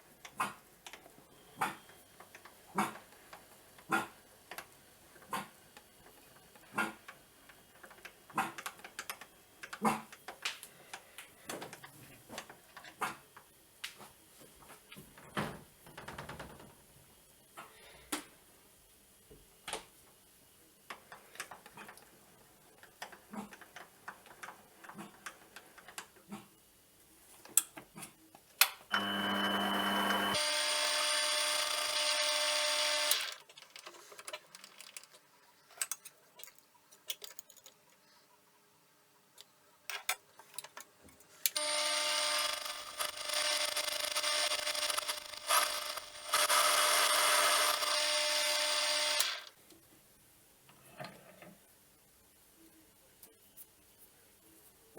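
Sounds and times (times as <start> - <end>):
metal lathe whining: 28.9 - 33.4, 41.6 - 49.5.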